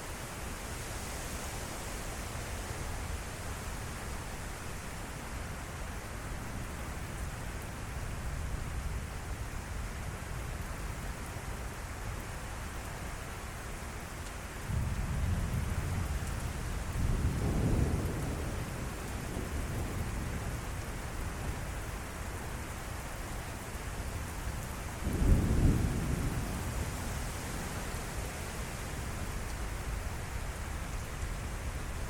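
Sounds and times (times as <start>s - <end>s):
steady rain: 0.0s - 32.0s
rolling thunder: 16.9s - 20.5s, 25.0s - 27.2s.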